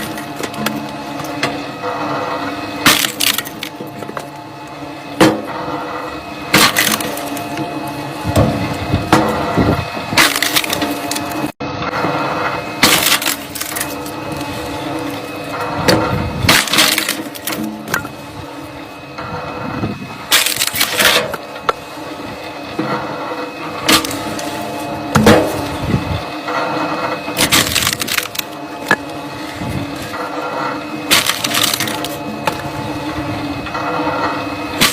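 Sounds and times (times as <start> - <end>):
machine hum: 0.0 - 34.9
wood cracking and splintering: 2.8 - 4.3, 6.5 - 7.6, 10.1 - 11.5, 12.8 - 18.1, 20.3 - 21.4, 23.8 - 25.8, 27.4 - 32.8.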